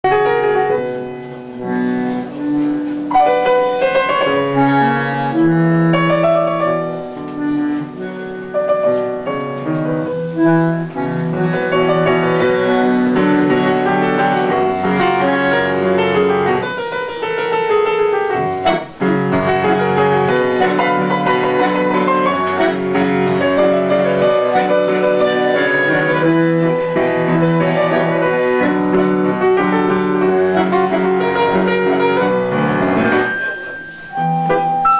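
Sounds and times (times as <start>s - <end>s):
piano chords and bass notes: 0.0s - 34.9s
bandoneon held reedy notes: 0.1s - 34.9s.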